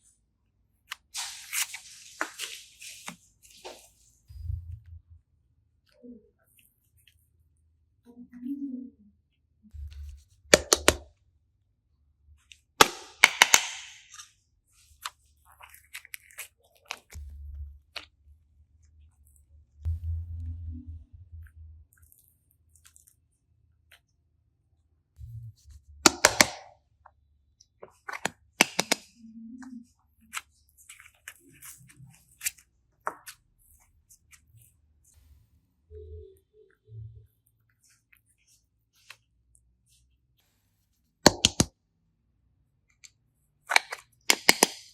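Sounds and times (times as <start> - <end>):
slime clicking and squishing: 14.8 - 19.4, 21.8 - 24.1, 27.6 - 35.2.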